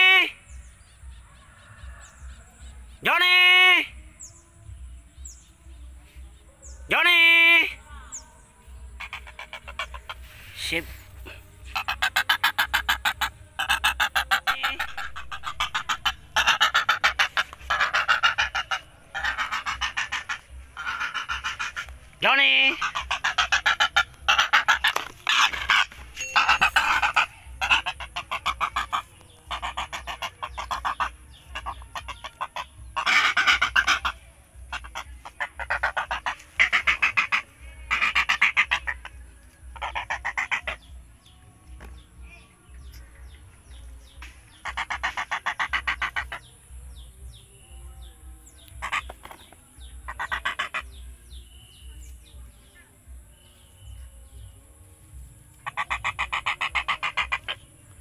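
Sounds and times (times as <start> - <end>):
wading bird honking calls: 11.6 - 40.9, 48.8 - 51.0, 55.6 - 57.6.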